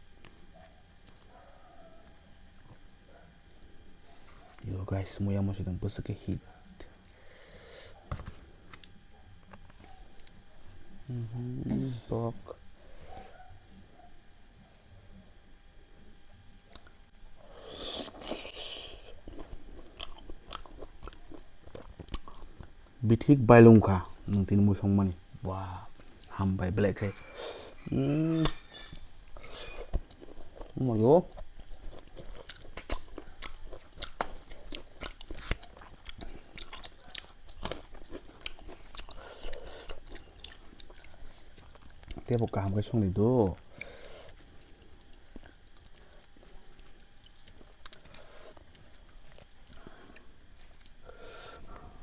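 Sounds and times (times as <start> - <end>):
person biting food: 16.7 - 22.4, 28.2 - 28.7, 31.6 - 40.2
wet chewing mouth sounds: 17.6 - 23.0, 27.7 - 42.5, 43.6 - 51.8
wet mouth clicks and smacks: 32.5 - 33.1.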